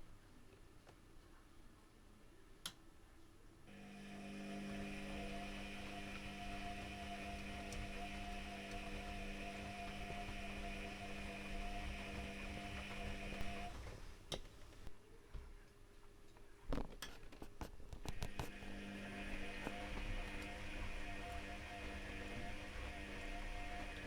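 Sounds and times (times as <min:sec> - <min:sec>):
washing machine humming: 0:03.7 - 0:15.0, 0:18.0 - 0:24.0.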